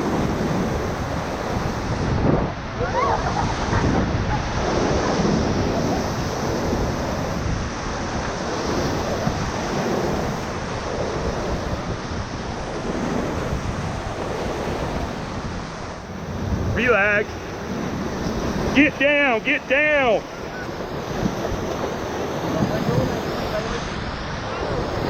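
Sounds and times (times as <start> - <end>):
rushing whitewater: 0.0 - 25.0.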